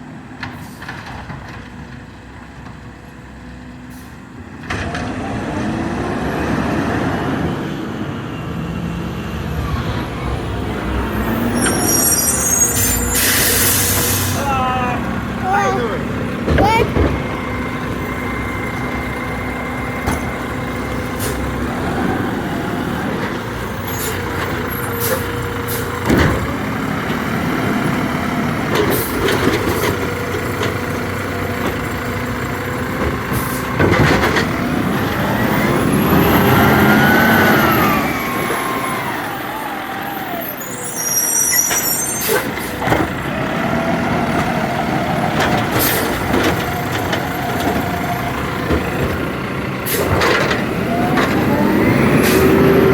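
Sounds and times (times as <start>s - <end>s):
truck engine running: 12.8s - 40.9s, 42.5s - 52.9s.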